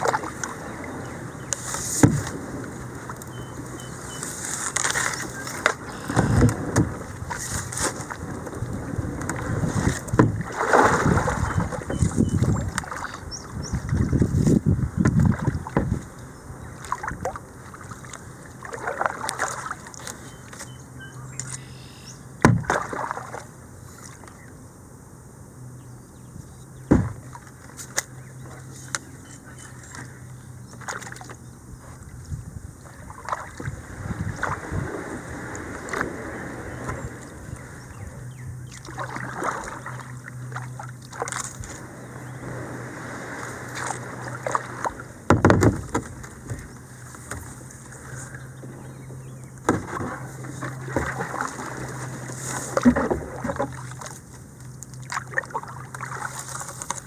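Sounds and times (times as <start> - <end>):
paddle splashing in water: 0.0 - 24.4, 26.8 - 32.2, 32.8 - 57.0
water sloshing: 0.0 - 24.4, 26.8 - 57.0
sharp knocks: 26.9 - 27.2, 45.3 - 46.1.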